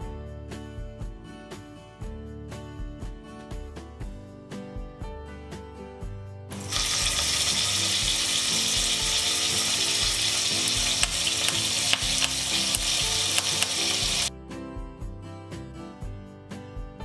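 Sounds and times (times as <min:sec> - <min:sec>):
seeds sizzling in hot oil: 0:06.6 - 0:14.3
sharp popping of spices: 0:06.6 - 0:14.3.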